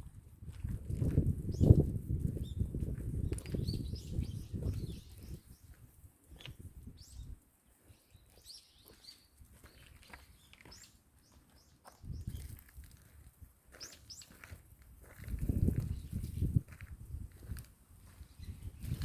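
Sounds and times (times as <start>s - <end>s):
wind rumbling on microphone: 0.0s - 7.4s, 12.0s - 13.5s, 14.3s - 19.0s
small birds chirping: 1.1s - 19.0s.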